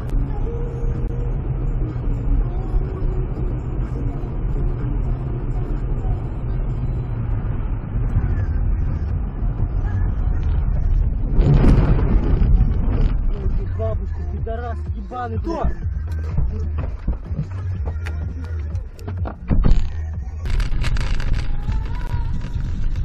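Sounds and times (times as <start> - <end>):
car engine and road noise: 0.0 - 23.0
burst of noise: 11.2 - 13.3.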